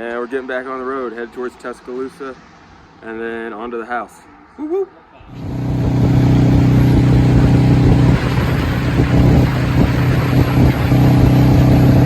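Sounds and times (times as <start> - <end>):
motorcycle engine cruising: 5.3 - 12.0
wind on microphone: 5.3 - 12.0.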